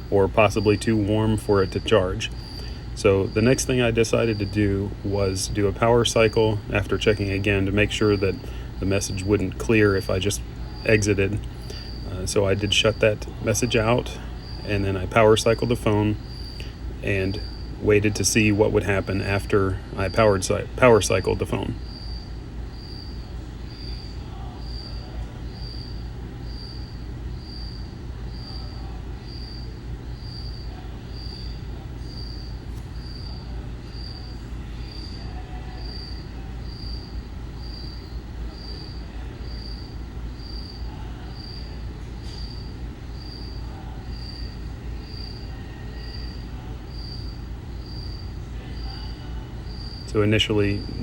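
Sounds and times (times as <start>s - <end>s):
cricket chirping: 0.0s - 51.0s
low steady rumble: 46.4s - 51.0s.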